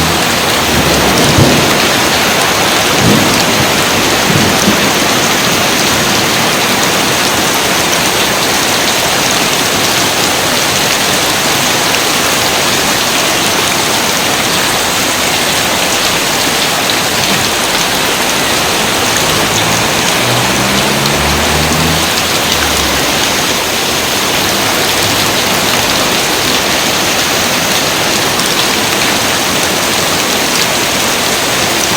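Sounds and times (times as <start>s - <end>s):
rain pouring: 0.0s - 31.9s.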